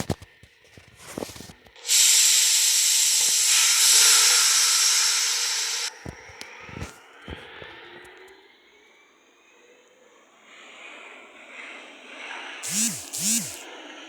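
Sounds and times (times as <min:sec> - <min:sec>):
train air brakes hissing: 0:01.8 - 0:05.9.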